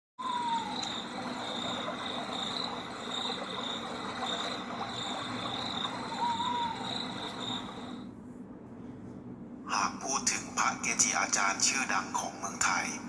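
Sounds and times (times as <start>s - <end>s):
insects trilling: 0.2s - 8.1s.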